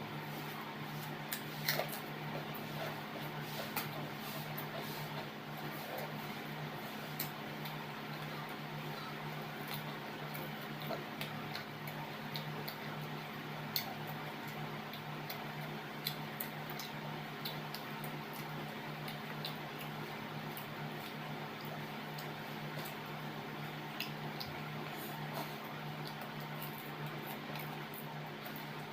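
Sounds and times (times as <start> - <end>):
steady low hum: 0.0 - 28.9
eating clicks: 7.1 - 13.1, 13.7 - 23.1.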